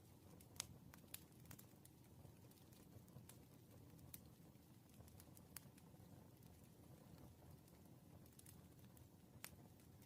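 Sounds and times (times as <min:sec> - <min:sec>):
low rumble of flames: 0:00.0 - 0:10.0
wood fire crackles and pops: 0:00.0 - 0:10.0.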